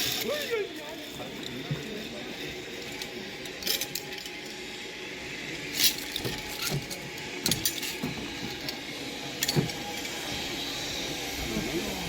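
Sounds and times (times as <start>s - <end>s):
sharp clinks and clicks: 2.8s - 4.6s.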